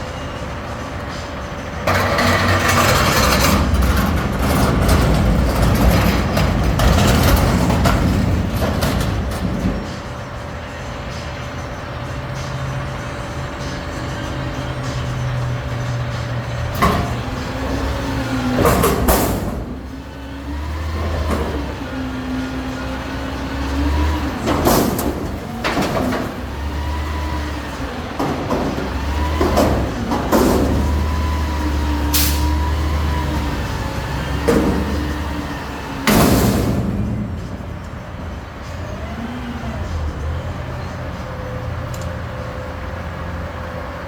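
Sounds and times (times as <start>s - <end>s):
garbage truck engine revving: 0.0s - 44.0s
sharp bangs: 24.0s - 38.2s.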